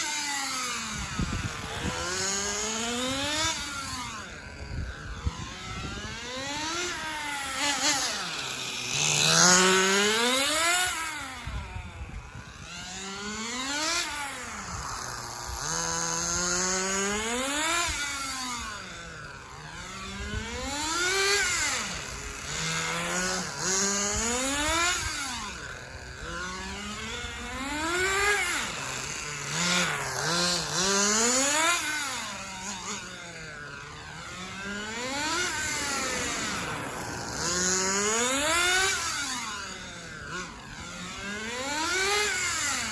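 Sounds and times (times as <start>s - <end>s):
rc car engine whine: 0.0s - 42.9s.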